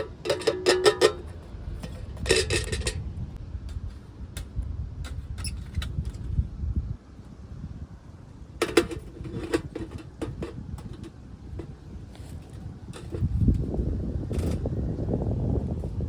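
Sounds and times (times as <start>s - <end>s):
clicks of objects being handled: 0.0s - 3.0s
wind rumble on microphone: 0.0s - 16.0s.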